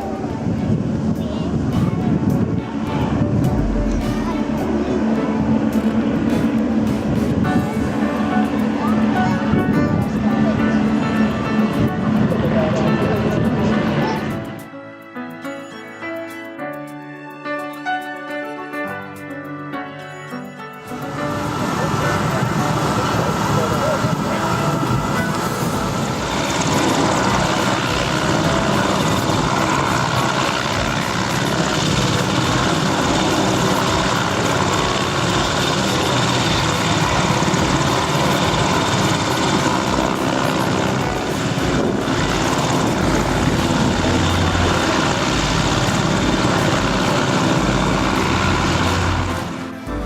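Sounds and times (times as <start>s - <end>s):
aircraft engine running: 0.0s - 14.8s, 20.8s - 50.0s.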